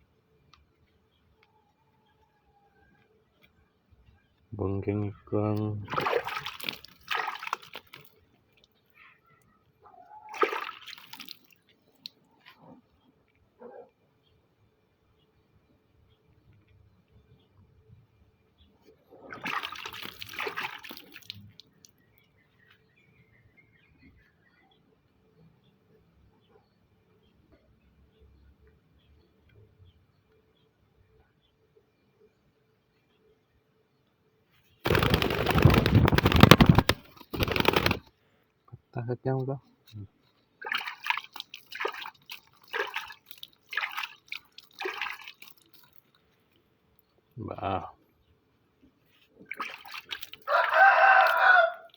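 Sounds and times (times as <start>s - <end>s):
water splashing: 5.8s - 8.2s, 10.3s - 11.6s, 19.3s - 21.6s, 34.9s - 38.0s, 40.6s - 46.0s, 49.4s - 51.9s.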